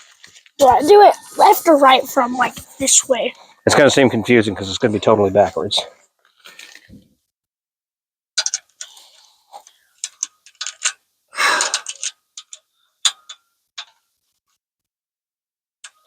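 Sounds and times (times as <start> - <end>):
metal bolts clicking and tapping: 8.4 - 8.9, 10.0 - 11.0, 11.7 - 14.0.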